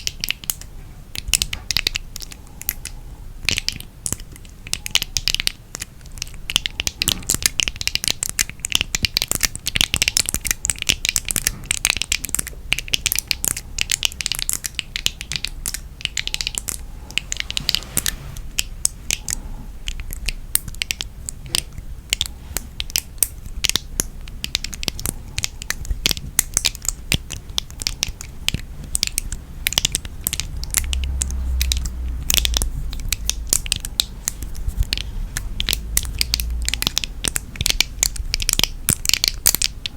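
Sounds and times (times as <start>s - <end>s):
object crackling and crunching: 3.5s - 39.9s
low rumble: 28.3s - 38.4s.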